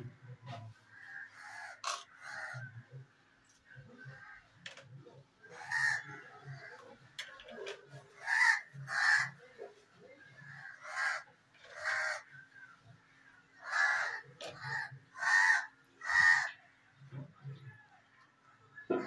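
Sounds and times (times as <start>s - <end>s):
bird harsh calls: 0.8s - 2.8s, 5.4s - 6.8s, 8.0s - 9.4s, 10.3s - 16.7s.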